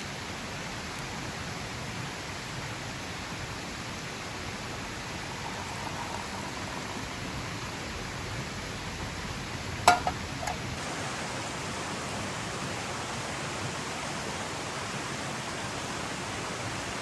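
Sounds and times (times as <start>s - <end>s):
rushing water: 0.0s - 17.0s
sharp clink: 9.9s - 10.6s.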